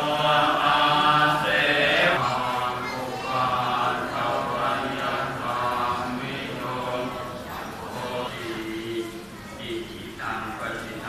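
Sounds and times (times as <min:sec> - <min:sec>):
voices chanting in unison: 0:00.0 - 0:11.0.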